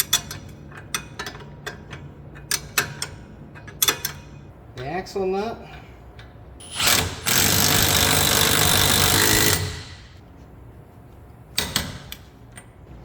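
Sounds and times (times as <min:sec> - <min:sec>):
impact wrench hammering: 0:06.6 - 0:10.2.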